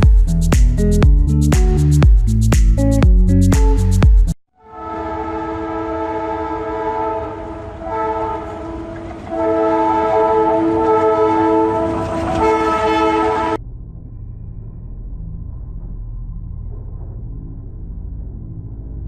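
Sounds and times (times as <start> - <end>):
train horn chord: 4.6 - 13.6
low rumble: 13.6 - 19.0.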